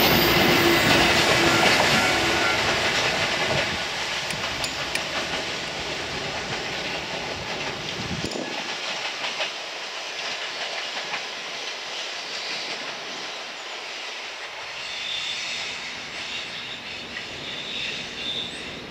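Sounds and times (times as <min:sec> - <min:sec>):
rushing rail noise: 0:00.0 - 0:18.9
wheels clattering over rail joints: 0:00.8 - 0:11.9.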